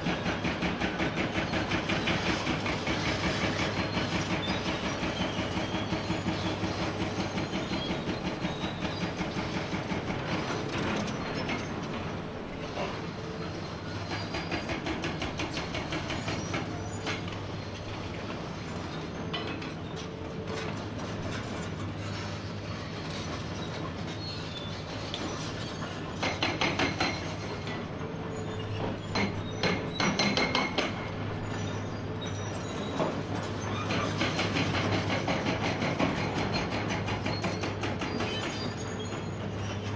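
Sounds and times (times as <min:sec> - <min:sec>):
hydraulic breaker hammering rock: 0:00.0 - 0:18.2, 0:25.2 - 0:27.8, 0:28.8 - 0:31.8, 0:32.4 - 0:39.7.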